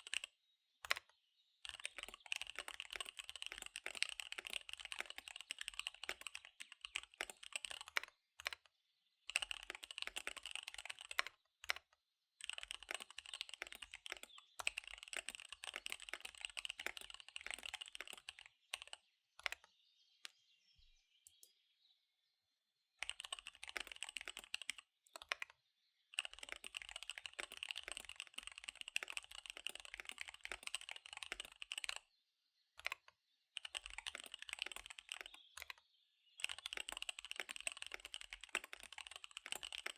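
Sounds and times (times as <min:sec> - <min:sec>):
mechanical keyboard typing: 0:00.0 - 0:08.7, 0:09.3 - 0:20.4, 0:23.0 - 0:25.5, 0:26.2 - 0:32.0, 0:32.8 - 0:35.8, 0:36.4 - 0:39.9.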